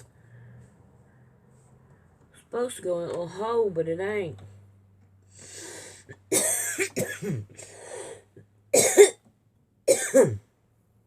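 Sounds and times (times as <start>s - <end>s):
person coughing hard: 6.3s - 7.8s, 8.8s - 9.2s, 9.9s - 10.5s.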